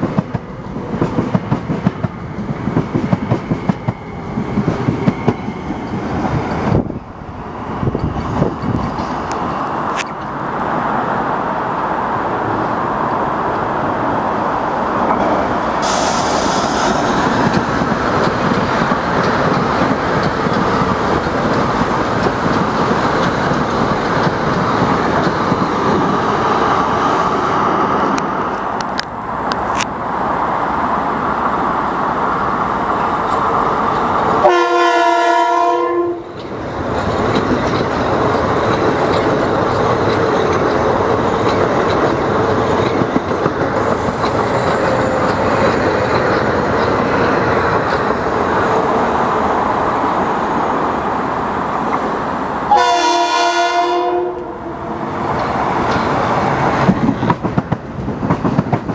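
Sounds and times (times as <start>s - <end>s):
train wheels rumbling on rails: 0.0s - 58.9s
train horn: 34.4s - 36.3s, 52.7s - 55.0s.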